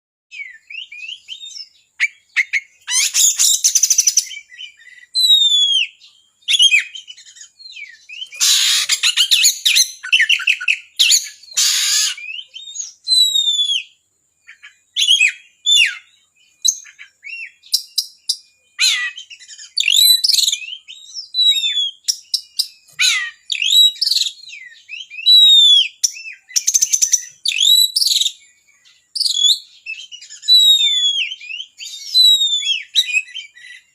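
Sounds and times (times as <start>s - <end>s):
bird singing whistled notes: 0.3s - 33.9s
bird harsh rattling calls: 2.0s - 5.0s, 8.2s - 12.9s, 22.4s - 24.4s.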